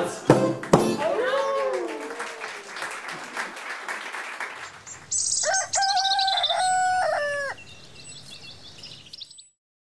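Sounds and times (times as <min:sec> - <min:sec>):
loud bird-like call: 0:04.6 - 0:09.3.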